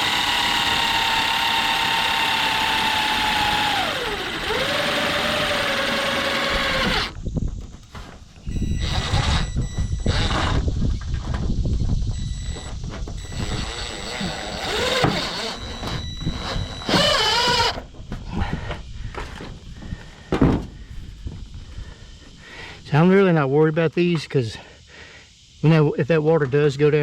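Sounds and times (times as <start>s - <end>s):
cordless drill motor whine: 0.0s - 11.0s, 12.0s - 20.0s.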